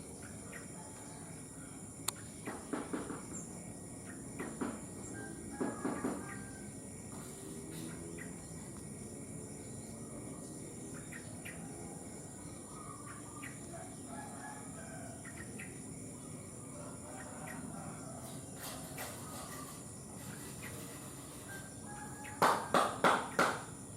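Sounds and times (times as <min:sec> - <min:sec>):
high-pitched insect drone: 0:00.0 - 0:22.6
faint rooster crowing: 0:00.6 - 0:02.0, 0:05.0 - 0:08.0, 0:11.6 - 0:15.6, 0:16.2 - 0:23.0.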